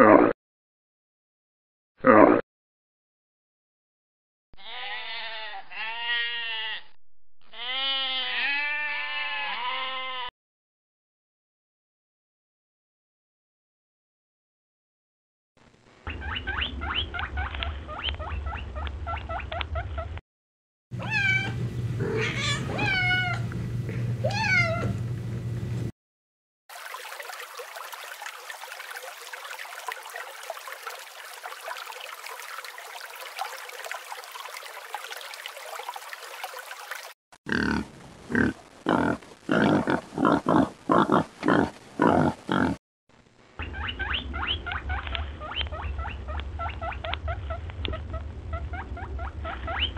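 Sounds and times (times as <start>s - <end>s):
guinea pig squeaking: 16.1s - 20.2s, 43.6s - 49.9s
cat-like calls: 21.0s - 23.5s.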